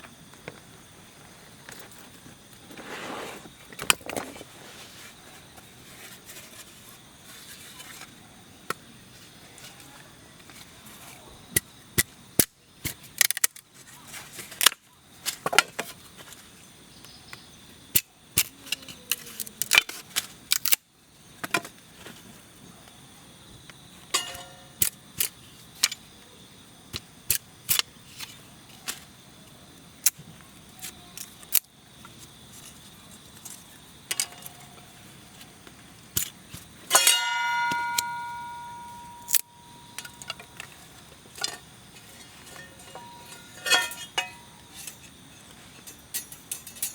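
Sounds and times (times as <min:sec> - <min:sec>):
light metal parts clinking: 0:24.1 - 0:26.0, 0:33.4 - 0:35.0, 0:36.2 - 0:46.9
metal plate ringing: 0:24.2 - 0:24.8, 0:36.9 - 0:40.7, 0:42.4 - 0:45.1.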